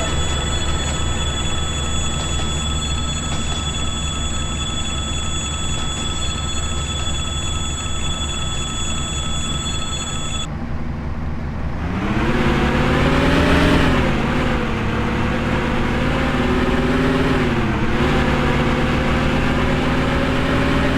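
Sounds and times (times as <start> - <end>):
steady high whine: 0.0 - 10.5
diesel locomotive engine: 0.0 - 20.9.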